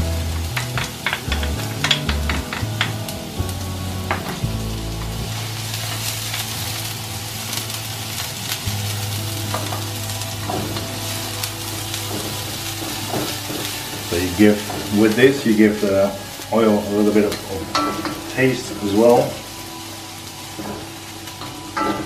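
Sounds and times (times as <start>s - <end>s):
onions sizzling in hot oil: 0.0s - 22.0s
wooden spoon tapping wok: 0.2s - 3.2s, 9.3s - 16.4s, 17.1s - 19.6s.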